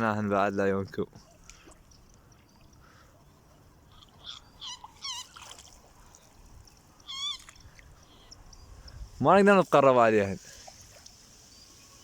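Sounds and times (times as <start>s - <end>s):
quiet marsh background noise: 0.0s - 12.0s
faint bird warbling calls: 1.2s - 9.2s.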